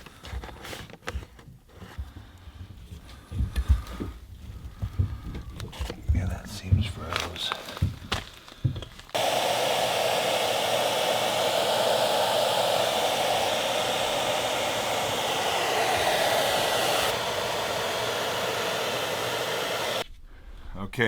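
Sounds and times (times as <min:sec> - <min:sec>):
hot-air blower running: 0:09.1 - 0:20.0.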